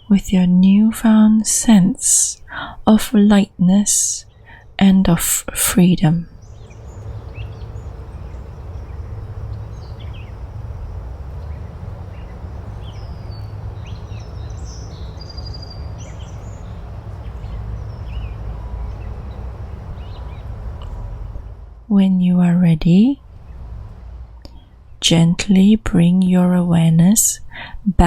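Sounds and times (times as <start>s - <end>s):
small birds chirping: 0.0s - 21.6s
steady low rushing: 5.9s - 25.6s.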